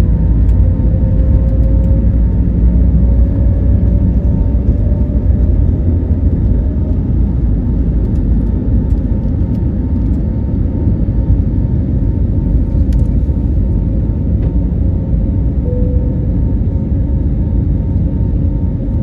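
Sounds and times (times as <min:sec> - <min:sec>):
jet engine drone in cabin: 0:00.0 - 0:19.0
faint steady hum: 0:15.6 - 0:17.6.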